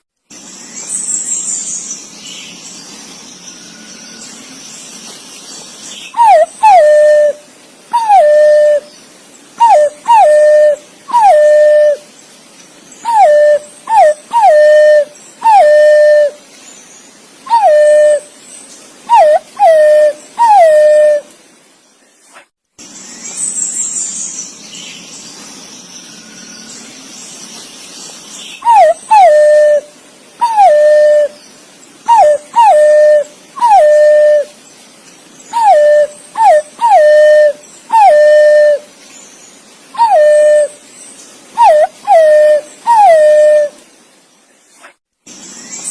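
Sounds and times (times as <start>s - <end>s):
pigeon whistled calls: 6.1s - 7.4s, 8.0s - 8.9s, 9.6s - 12.0s, 13.0s - 16.4s, 17.5s - 18.3s, 19.1s - 21.2s, 28.6s - 31.4s, 32.1s - 34.5s, 35.6s - 38.8s, 40.0s - 40.8s, 41.6s - 43.7s.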